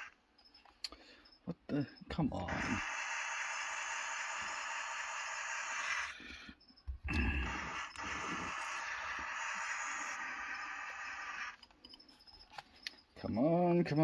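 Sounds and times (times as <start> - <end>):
model train hissing: 2.5 - 6.2, 7.4 - 11.6.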